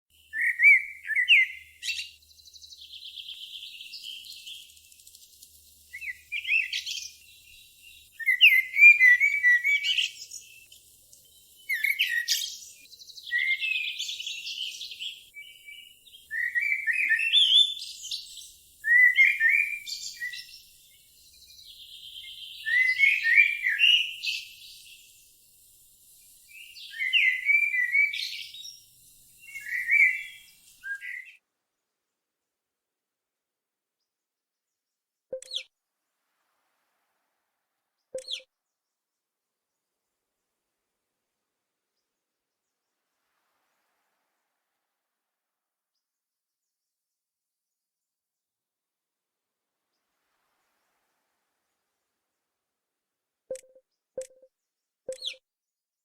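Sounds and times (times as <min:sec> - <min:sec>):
bird singing chirps and trills: 0:00.2 - 0:31.4, 0:35.3 - 0:35.7, 0:38.2 - 0:38.5, 0:55.1 - 0:55.4.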